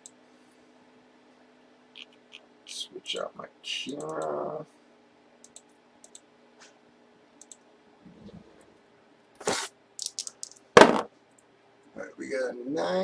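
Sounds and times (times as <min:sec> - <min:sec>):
loud sharp knock: 0:10.8 - 0:11.1.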